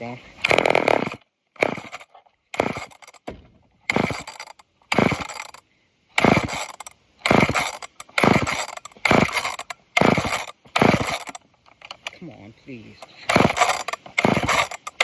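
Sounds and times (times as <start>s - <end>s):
engine turning over: 0.4s - 3.2s, 3.9s - 5.6s, 6.2s - 11.4s, 13.1s - 15.0s
chainsaw starter cord pulls: 0.4s - 3.3s, 3.9s - 5.6s, 6.2s - 12.2s, 13.0s - 15.0s.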